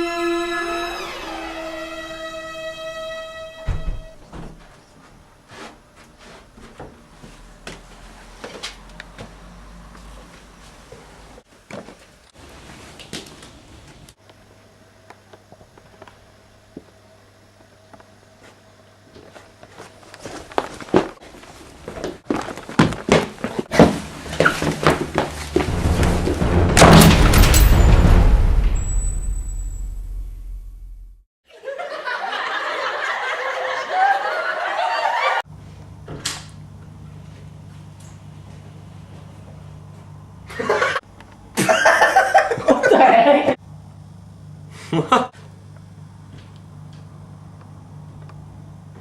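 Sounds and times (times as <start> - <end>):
held electronic music notes: 0.0 - 3.7
knocks and thuds: 22.8 - 30.7
low hum: 24.1 - 31.2
heavy low thump: 24.7 - 31.2.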